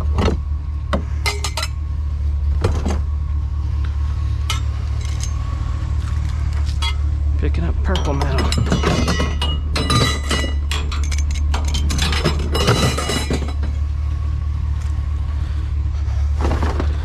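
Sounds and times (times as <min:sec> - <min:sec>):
low hum: 0:00.0 - 0:17.0
scrap metal clinking and clattering: 0:01.2 - 0:01.8, 0:04.4 - 0:05.5, 0:06.6 - 0:07.1, 0:07.8 - 0:13.8.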